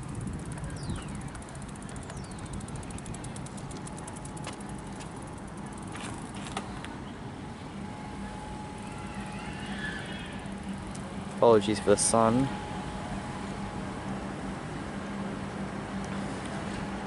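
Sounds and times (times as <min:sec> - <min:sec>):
fast light ticks: 0:00.0 - 0:05.9
train low rumble: 0:00.0 - 0:17.0.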